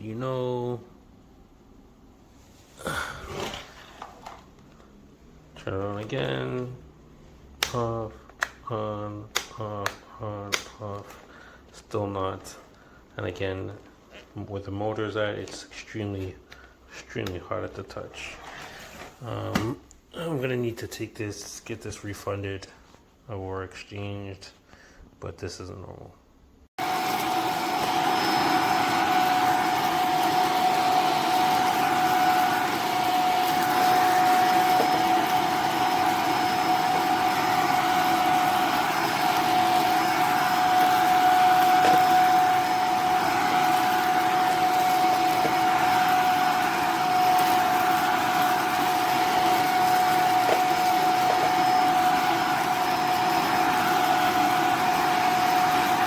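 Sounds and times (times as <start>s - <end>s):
vacuum cleaner running: 2.7s - 5.0s, 26.8s - 56.0s.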